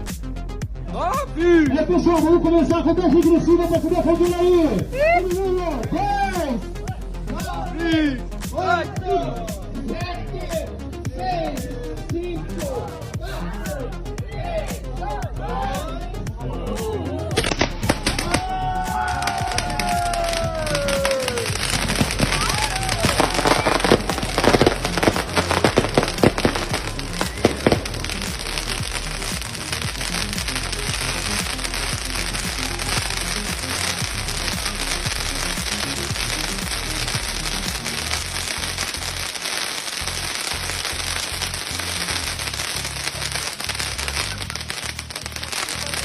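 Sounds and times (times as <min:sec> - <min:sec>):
music playing: 0:00.0 - 0:46.0
fireworks popping and crackling: 0:17.3 - 0:46.0.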